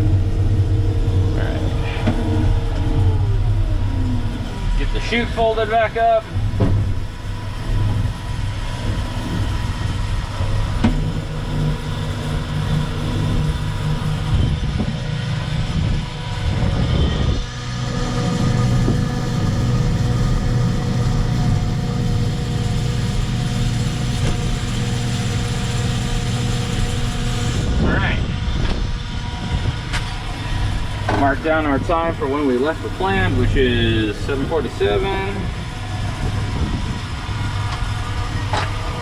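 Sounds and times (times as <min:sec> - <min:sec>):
diesel truck engine running: 0:00.0 - 0:39.0.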